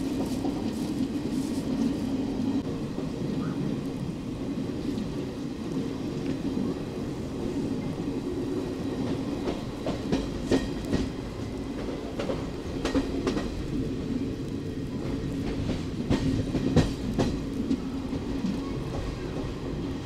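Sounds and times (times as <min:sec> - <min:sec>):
train wheels rumbling on rail: 0:00.0 - 0:20.0
wheels clicking over rail joints: 0:09.0 - 0:20.0.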